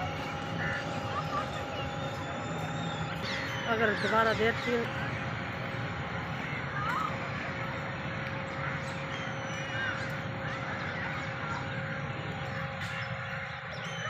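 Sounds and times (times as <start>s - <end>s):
noisy background: 0.0s - 14.0s
birds chirping and calling: 0.1s - 5.7s, 8.4s - 14.0s.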